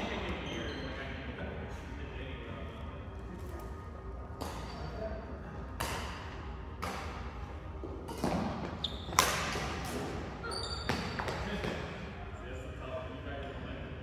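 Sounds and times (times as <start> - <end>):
rackets hitting shuttlecock: 4.4 - 5.0, 5.8 - 7.4, 8.0 - 11.8.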